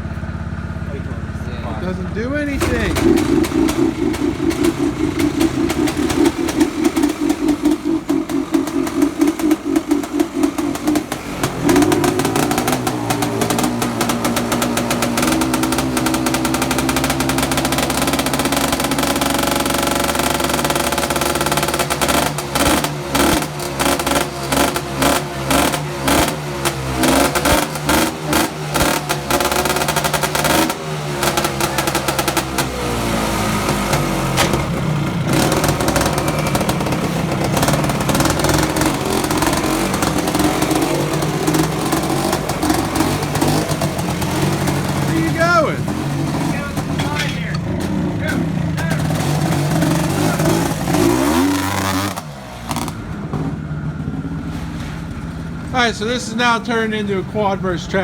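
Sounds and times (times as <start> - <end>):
vehicle engines revving: 0.0 - 58.0
rhythmic beat: 1.9 - 18.2.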